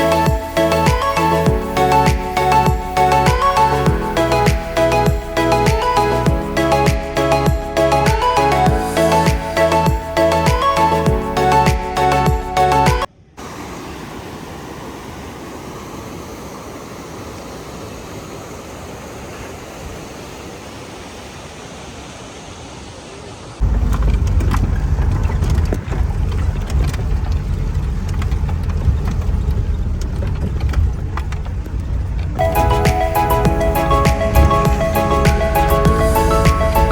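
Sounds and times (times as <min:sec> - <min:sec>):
engine and road rumble: 0:23.6 - 0:36.9.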